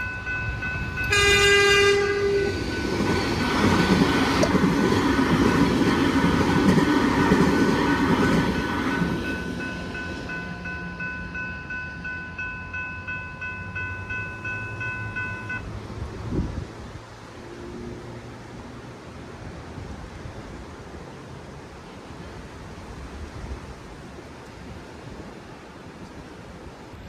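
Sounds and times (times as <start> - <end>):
level crossing bell ringing: 0.0 - 4.0, 7.2 - 15.6
train passing: 0.0 - 24.1.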